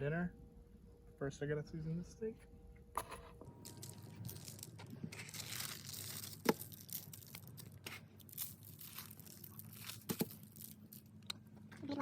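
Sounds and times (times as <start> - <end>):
wrapping being torn and crinkled: 3.6 - 11.3.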